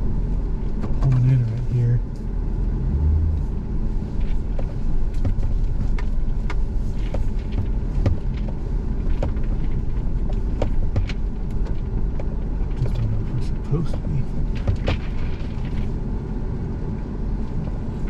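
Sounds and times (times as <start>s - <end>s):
vehicle driving slowly: 0.0s - 18.0s
knocks and rattles: 4.5s - 16.0s.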